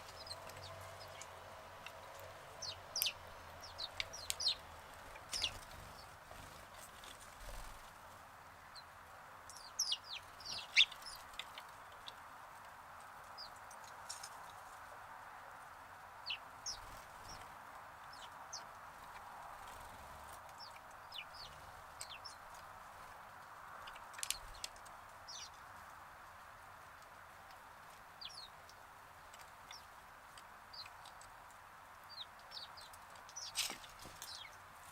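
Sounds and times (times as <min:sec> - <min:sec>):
sparrows chirping: 0:00.0 - 0:07.9, 0:09.5 - 0:12.2, 0:16.2 - 0:25.8, 0:28.0 - 0:34.9
steady background hiss: 0:00.0 - 0:34.9.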